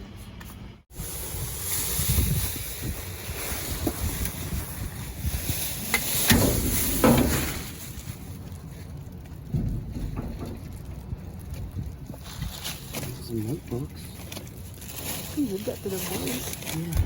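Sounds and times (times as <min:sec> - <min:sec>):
wind buffeting microphone: 0:00.9 - 0:13.8
rustling: 0:01.0 - 0:17.0.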